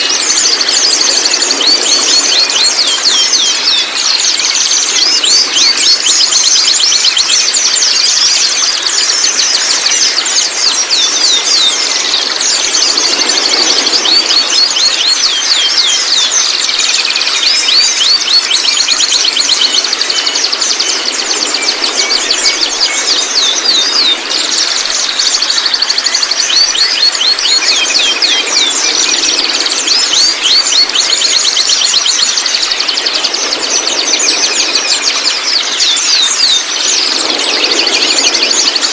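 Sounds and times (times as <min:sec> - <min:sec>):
birds chirping and twittering: 0:00.0 - 0:38.9
steady high whine: 0:08.1 - 0:38.9.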